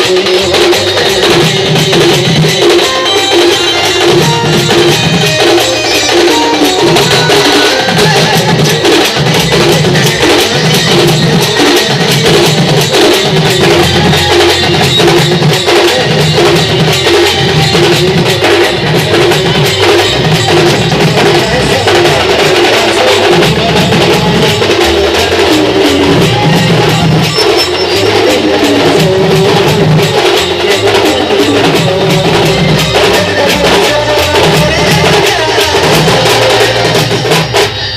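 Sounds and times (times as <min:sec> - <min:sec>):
instrumental folk music with percussion: 0:00.0 - 0:37.9.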